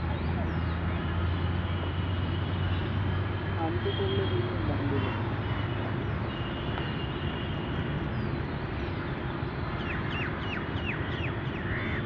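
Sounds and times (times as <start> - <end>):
steady outdoor rumble: 0.0 - 12.0.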